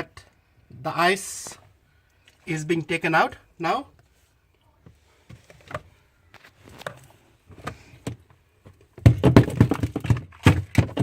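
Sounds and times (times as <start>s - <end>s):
ice cracking and knocking: 9.0s - 11.0s.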